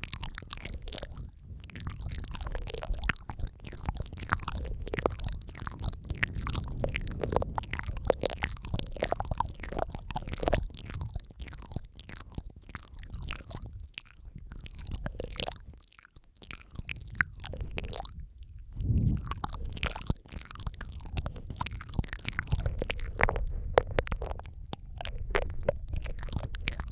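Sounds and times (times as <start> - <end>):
wet mouth sounds: 0.0 - 26.9
low rumble: 17.5 - 26.9.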